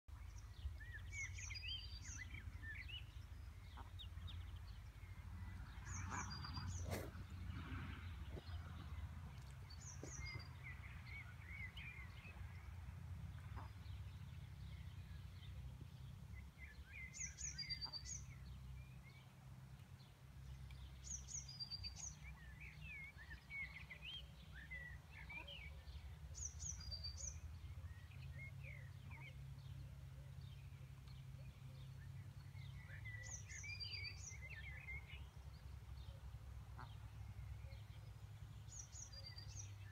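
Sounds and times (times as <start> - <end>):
small birds singing: 0.1 - 12.8, 13.4 - 39.9
steady low rumble: 0.1 - 16.8.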